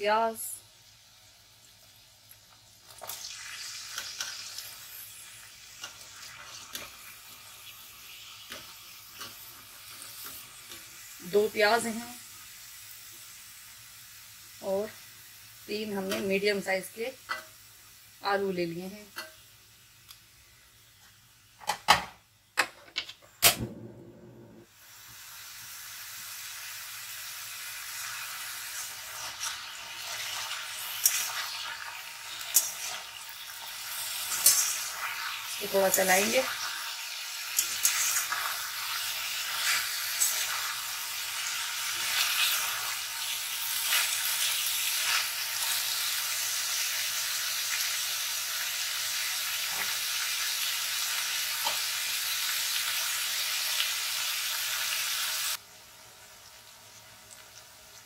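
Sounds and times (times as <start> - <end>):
onions and potatoes sizzling in oil: 0.0 - 22.6, 24.6 - 58.0.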